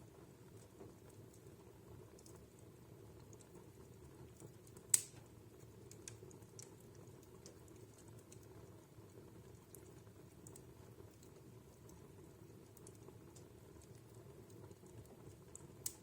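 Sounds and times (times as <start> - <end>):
low rumble of flames: 0.0 - 16.0
wood fire crackling: 0.0 - 16.0
sharp loud crack of fire: 4.9 - 5.3.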